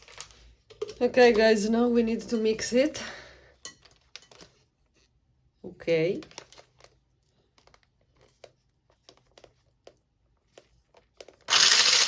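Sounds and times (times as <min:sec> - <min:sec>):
electric hand mixer running: 0:11.5 - 0:12.0.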